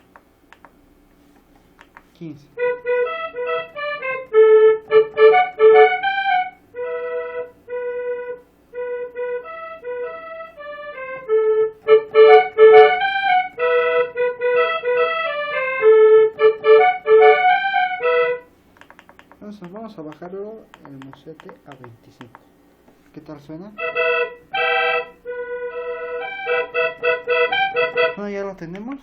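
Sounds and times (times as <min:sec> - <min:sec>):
keyboard accordion melody: 0:02.3 - 0:18.6, 0:23.6 - 0:28.6.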